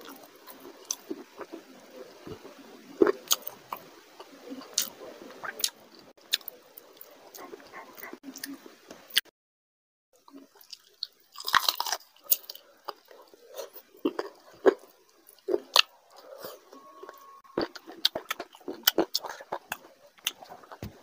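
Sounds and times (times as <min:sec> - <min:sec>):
wet chewing and lip smacking: 0:10.6 - 0:20.8.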